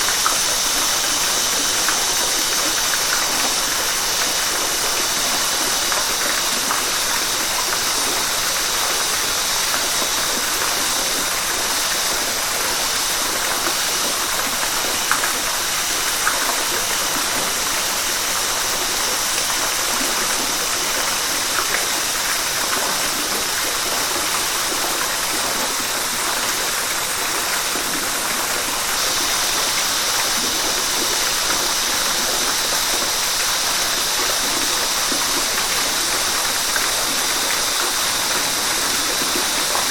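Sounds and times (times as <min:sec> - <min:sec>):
flowing river water: 0:00.0 - 0:39.9.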